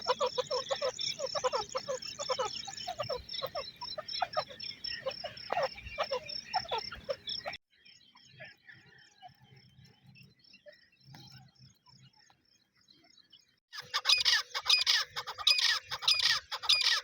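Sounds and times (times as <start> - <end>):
birds calling: 0.0 - 9.4, 13.2 - 17.0.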